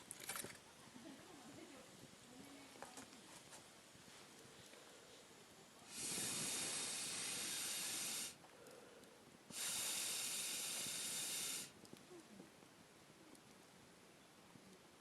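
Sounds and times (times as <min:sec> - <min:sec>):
hissing blasts of air: 0:05.8 - 0:08.4, 0:09.5 - 0:11.8.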